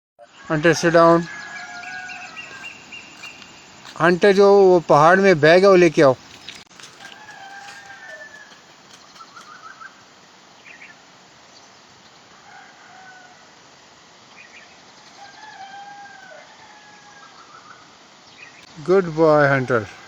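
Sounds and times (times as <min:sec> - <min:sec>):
bird chirps: 0:00.2 - 0:06.7
faint distant bird calls: 0:00.2 - 0:13.4.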